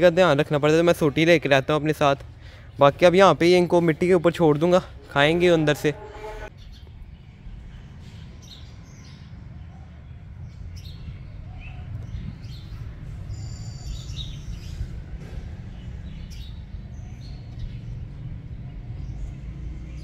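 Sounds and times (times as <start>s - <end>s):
small birds chirping: 6.4s - 20.0s.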